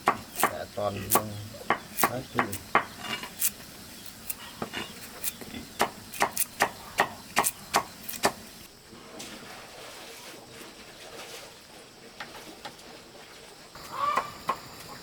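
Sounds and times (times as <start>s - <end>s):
sharp chopping strikes: 0.0s - 4.4s, 5.0s - 8.4s.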